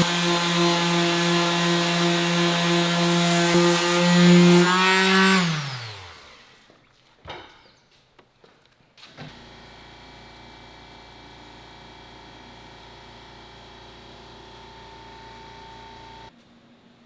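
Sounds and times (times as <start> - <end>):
power tool motor humming: 0.0 - 6.6.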